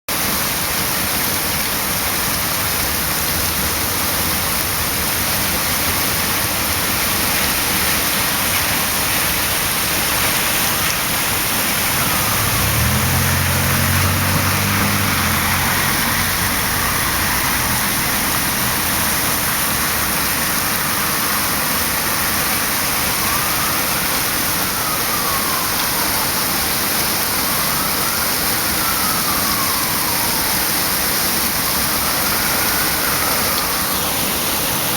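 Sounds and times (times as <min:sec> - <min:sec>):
heavy rain pouring: 0:00.1 - 0:34.9
distant siren wailing: 0:03.9 - 0:34.9
vehicle engine passing: 0:10.4 - 0:20.4.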